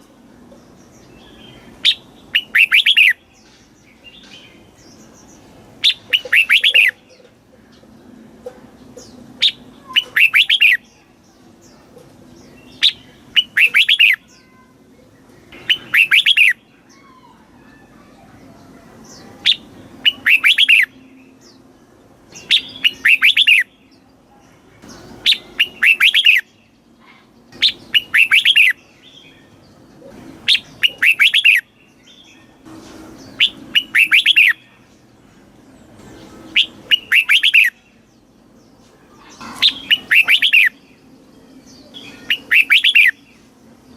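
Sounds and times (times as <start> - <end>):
bulbul whistled song: 1.8 - 3.2, 5.8 - 7.0, 9.4 - 10.8, 12.8 - 14.2, 15.6 - 16.6, 19.5 - 21.0, 22.4 - 23.7, 25.2 - 26.5, 27.6 - 28.8, 30.4 - 31.7, 33.3 - 34.7, 36.5 - 37.8, 39.8 - 40.8, 41.9 - 43.2.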